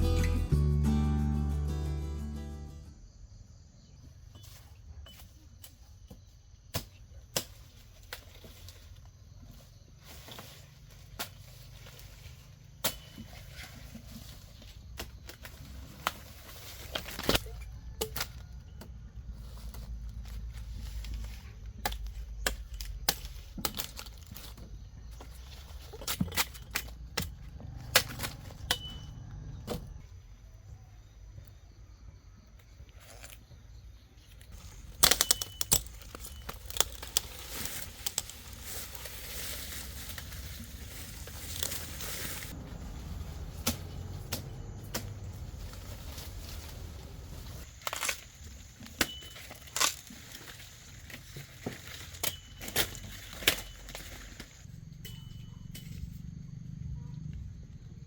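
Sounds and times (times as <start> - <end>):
brief high tone: 0.0 - 3.0
sharp cracks and knocks: 34.8 - 38.6
faint low rumble: 37.4 - 47.6.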